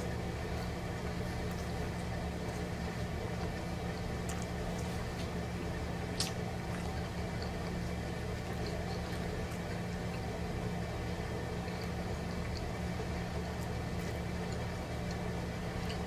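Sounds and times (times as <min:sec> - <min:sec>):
person chewing: 0:00.0 - 0:10.3, 0:11.4 - 0:16.0
low background hum: 0:00.0 - 0:16.0
wet mouth clicks: 0:06.1 - 0:06.4.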